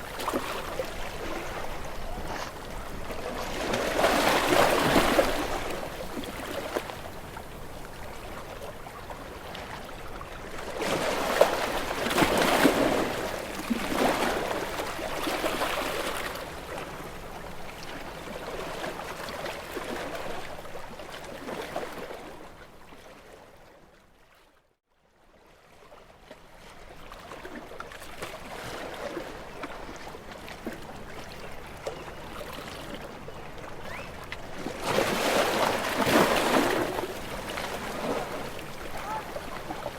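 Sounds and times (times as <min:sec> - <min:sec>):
sea waves breaking on rocks: 0:00.0 - 0:07.5, 0:10.6 - 0:16.8, 0:33.7 - 0:39.9.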